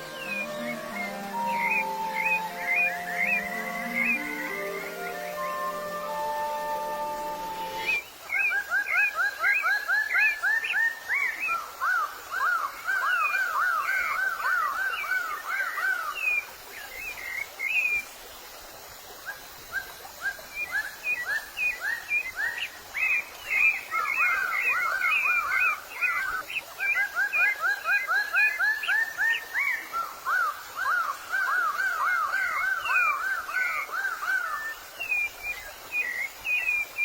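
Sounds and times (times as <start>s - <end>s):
music: 0.0s - 8.0s
songbirds singing: 0.0s - 18.1s, 19.4s - 37.0s.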